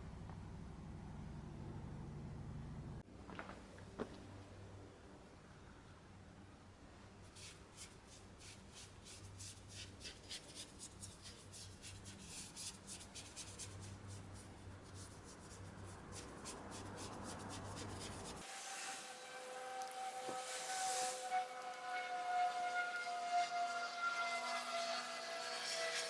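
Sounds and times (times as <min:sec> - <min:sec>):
hiss with whistle-like tones: 0:18.4 - 0:23.5.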